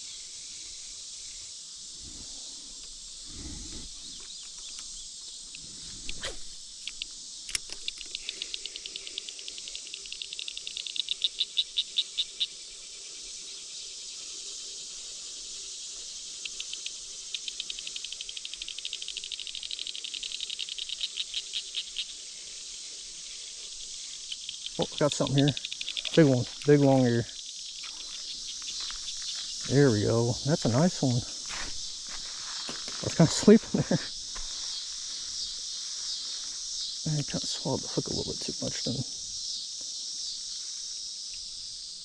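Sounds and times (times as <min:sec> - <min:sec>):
insect chorus hissing: 0:00.0 - 0:42.0
rapid clicking calls: 0:03.9 - 0:12.5, 0:16.3 - 0:22.2, 0:23.9 - 0:31.2.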